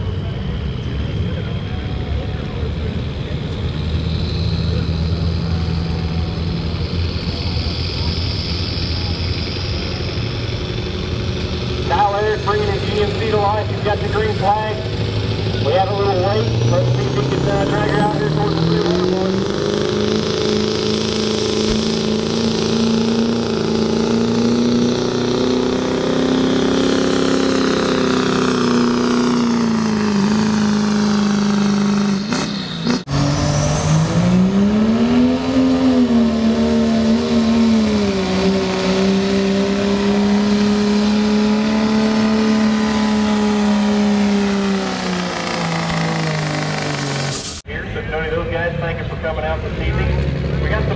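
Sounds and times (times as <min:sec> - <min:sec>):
diesel engine at high revs: 0:00.0 - 0:50.9.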